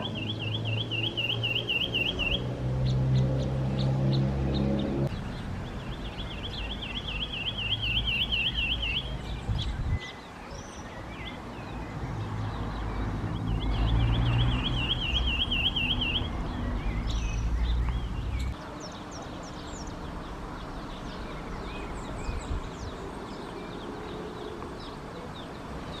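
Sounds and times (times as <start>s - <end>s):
bird trilling: 0.0s - 3.0s, 6.3s - 9.2s, 13.6s - 18.5s.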